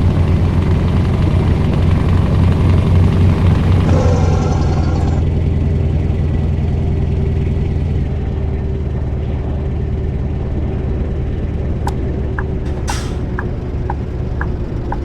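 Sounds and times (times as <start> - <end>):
diesel truck engine droning: 0.0 - 15.0
brief high hiss: 12.6 - 13.4.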